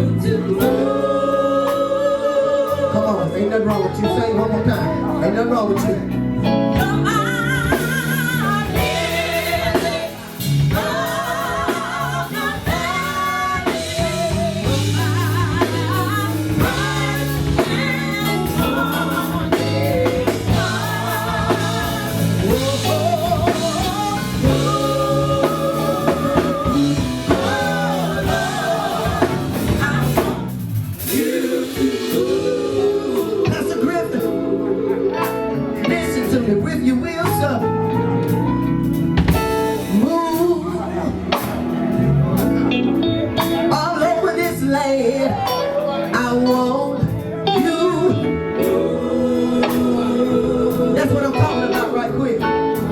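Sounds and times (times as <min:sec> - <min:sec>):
person singing gospel: 0:00.0 - 0:38.7, 0:39.3 - 0:52.9
band playing: 0:00.0 - 0:52.9.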